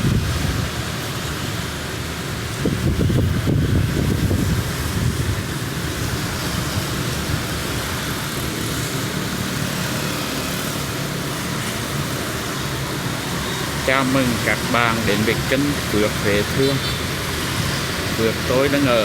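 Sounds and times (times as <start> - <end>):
wind buffeting microphone: 0.0 - 1.0, 2.4 - 8.7
heavy rain hissing: 0.0 - 19.0.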